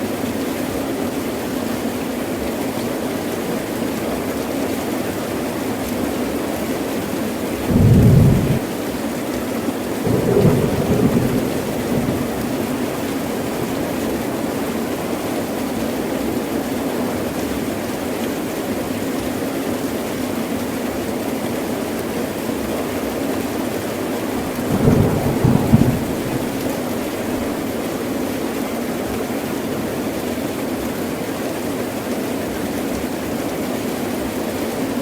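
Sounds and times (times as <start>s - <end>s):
heavy rain falling: 0.0s - 35.0s
thunder rumbling: 7.6s - 8.8s, 10.1s - 14.8s, 24.4s - 27.7s.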